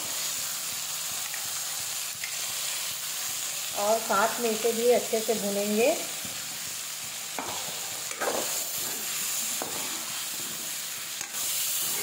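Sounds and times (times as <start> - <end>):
food sizzling in hot oil: 0.0 - 12.0
metal ladle scraping a pan: 11.2 - 12.0.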